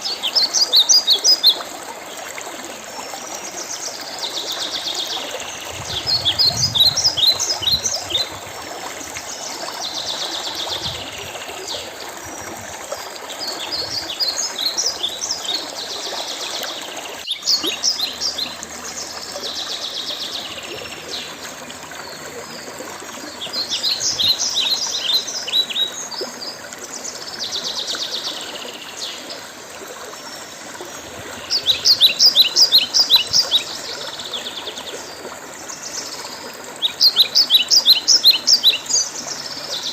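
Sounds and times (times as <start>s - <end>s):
stream trickling: 0.0s - 39.9s
songbird singing: 4.0s - 8.5s, 17.2s - 21.4s, 31.1s - 35.2s, 35.8s - 39.9s.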